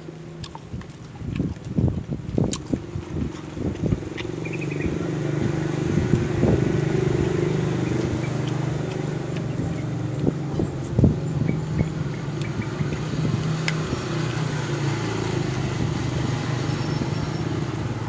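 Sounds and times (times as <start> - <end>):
vehicle engine running: 0.0 - 18.0
sharp clicks and crunches: 0.4 - 4.4, 12.1 - 14.5.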